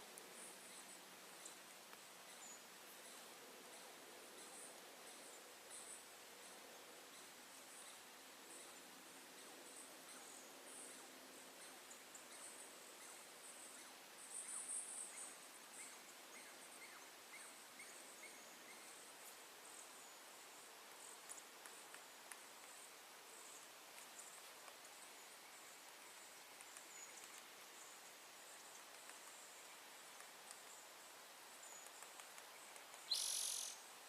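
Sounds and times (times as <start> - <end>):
insect chirping: 13.0 - 33.9.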